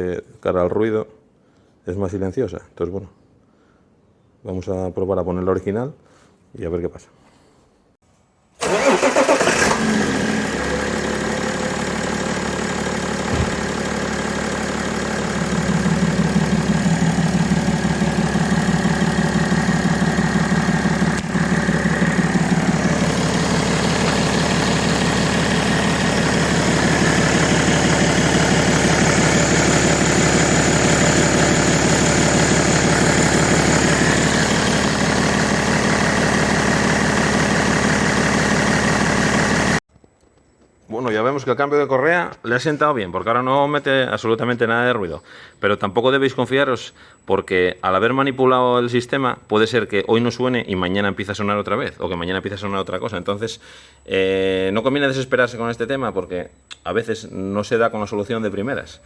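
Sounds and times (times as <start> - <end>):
diesel engine starting and idling: 8.6 - 39.8.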